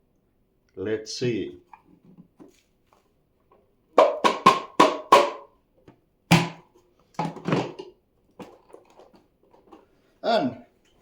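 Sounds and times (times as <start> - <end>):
sharp hollow knocks: 4.0 - 5.5, 6.3 - 6.7.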